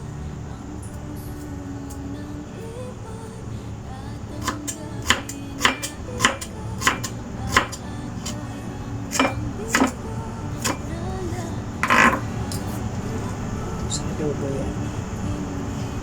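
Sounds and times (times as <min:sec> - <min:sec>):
knife chopping on cutting board: 0:04.4 - 0:08.4, 0:09.1 - 0:10.0, 0:10.6 - 0:10.9.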